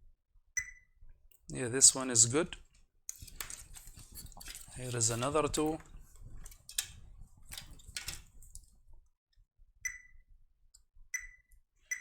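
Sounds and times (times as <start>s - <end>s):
short high meter beep: 11.2s - 12.0s.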